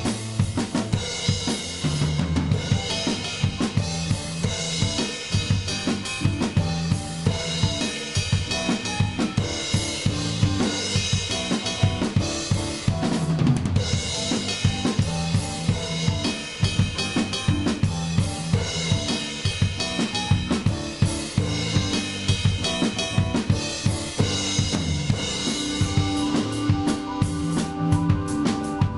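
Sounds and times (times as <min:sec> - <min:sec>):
drum kit: 0:00.0 - 0:28.9
low bass notes: 0:00.0 - 0:28.9.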